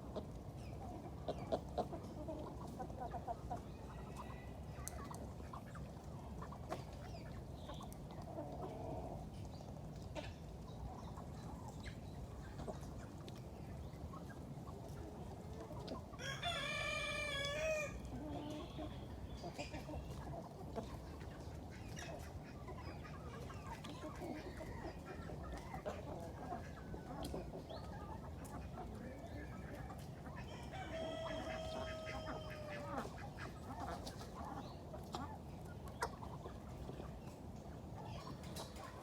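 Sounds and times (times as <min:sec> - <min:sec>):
chickens clucking: 0:00.0 - 0:39.0
rooster crowing: 0:16.2 - 0:18.0, 0:30.6 - 0:32.8.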